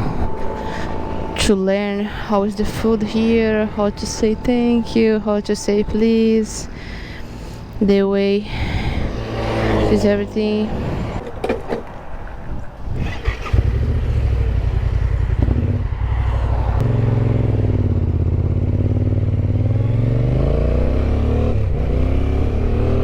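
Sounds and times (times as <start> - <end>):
motorcycle engine revving: 8.5 - 23.0
clattering knocks: 11.2 - 12.4.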